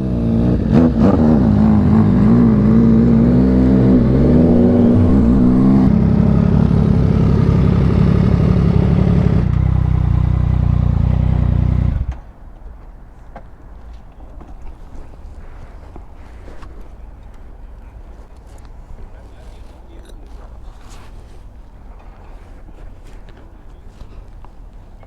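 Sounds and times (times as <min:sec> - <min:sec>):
motorcycle engine idling: 0:01.7 - 0:12.2.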